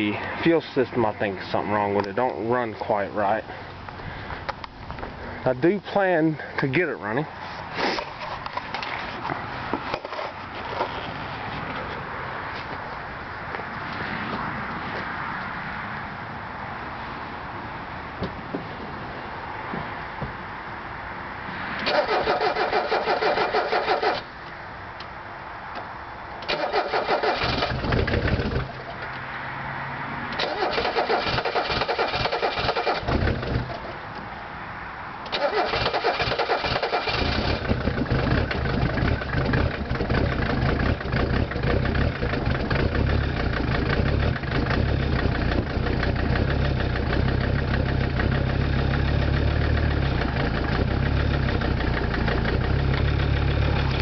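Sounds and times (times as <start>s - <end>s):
starter motor cranking: 21.9s - 24.2s, 30.4s - 33.6s, 35.3s - 40.2s
diesel engine idling: 26.4s - 29.0s, 35.3s - 54.0s.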